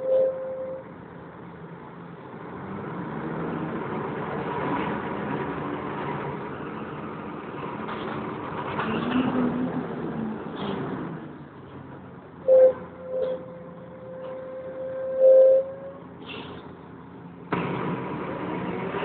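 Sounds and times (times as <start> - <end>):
faint whine: 0.0 - 1.0
bus engine running: 0.0 - 19.0.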